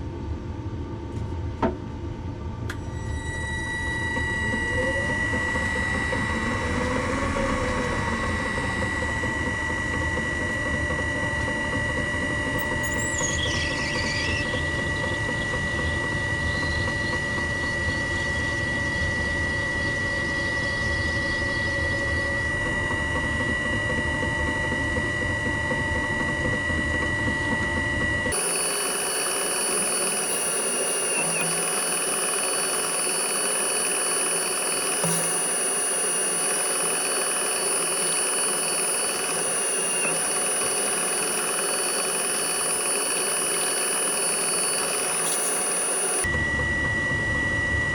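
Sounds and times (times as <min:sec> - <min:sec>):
electric motor whining: 0:28.3 - 0:46.3.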